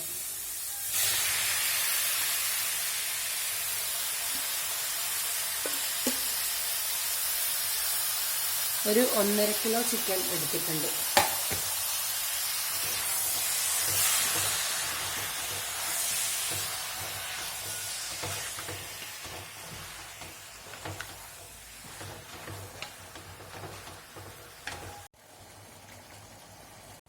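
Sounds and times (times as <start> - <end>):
meat sizzling in a pan: 0.0 - 27.0
knock of meat in pan: 11.2 - 11.8
stirring clicks: 12.8 - 25.1.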